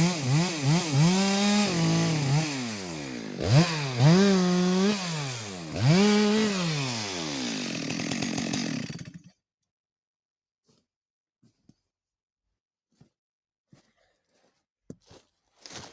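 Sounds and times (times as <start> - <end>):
chainsaw engine revving: 0.0 - 9.3.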